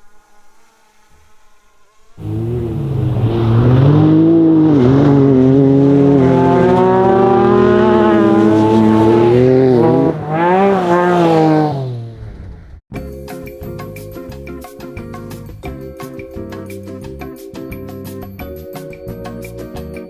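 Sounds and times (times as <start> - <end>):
music: 0.0 - 2.2, 12.9 - 20.0
rally car engine revving: 2.2 - 12.8.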